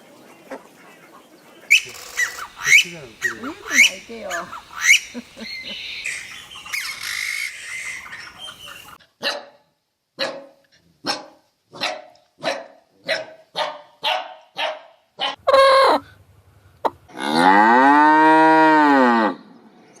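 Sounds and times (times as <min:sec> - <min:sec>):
short animal calls: 0:01.7 - 0:09.0
cow mooing: 0:17.1 - 0:19.4.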